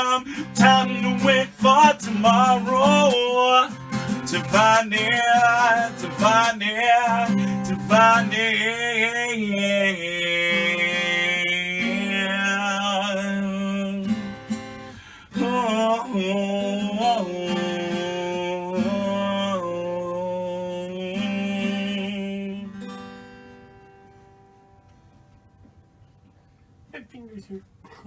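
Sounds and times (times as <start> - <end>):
person singing: 0.0 - 14.1
acoustic guitar strumming: 0.0 - 27.0.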